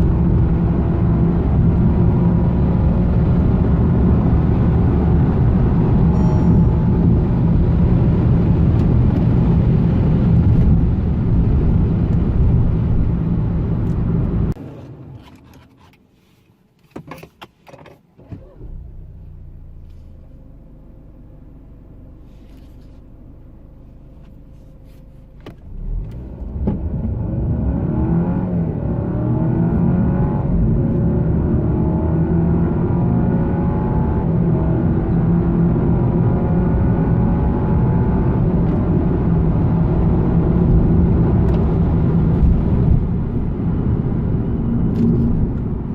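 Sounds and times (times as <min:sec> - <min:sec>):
car engine accelerating: 0:00.0 - 0:15.3, 0:25.6 - 0:45.9
road noise: 0:00.0 - 0:45.9.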